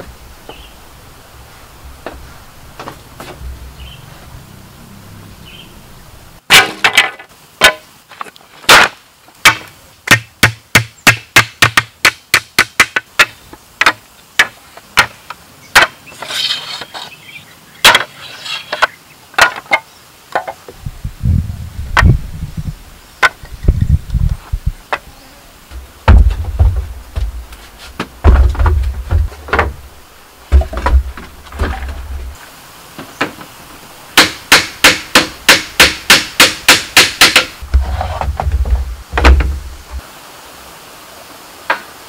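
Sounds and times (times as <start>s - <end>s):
tool striking bamboo: 6.5s - 7.9s, 8.7s - 16.0s, 17.8s - 18.1s, 18.7s - 19.8s, 34.2s - 39.6s.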